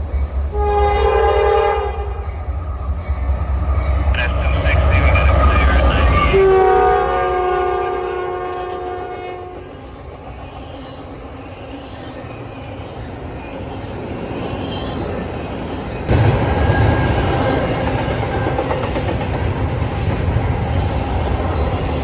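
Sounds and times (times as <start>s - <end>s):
train rumbling on rails: 0.0s - 22.0s
locomotive air horn chord: 0.5s - 2.2s, 4.2s - 9.6s.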